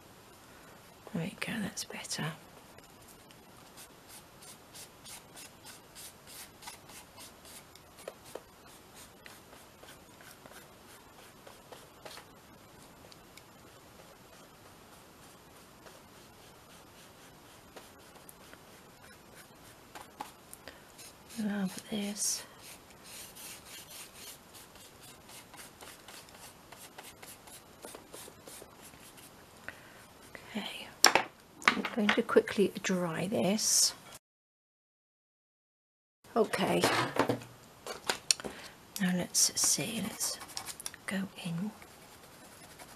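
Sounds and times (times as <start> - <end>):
applicator scratching on paper: 22.6 - 29.2.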